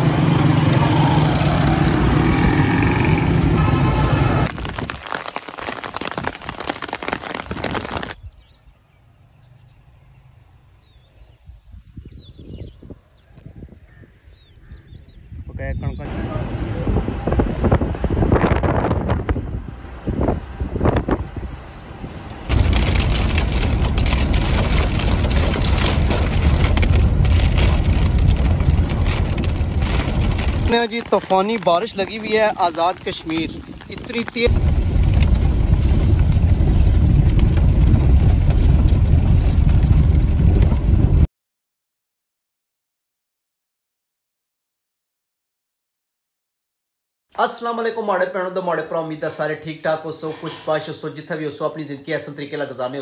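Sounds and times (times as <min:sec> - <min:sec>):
heavy rain on a wet road: 0:03.6 - 0:08.2, 0:22.5 - 0:40.0
wind buffeting microphone: 0:10.8 - 0:41.3
vehicle low rumble: 0:15.9 - 0:41.3.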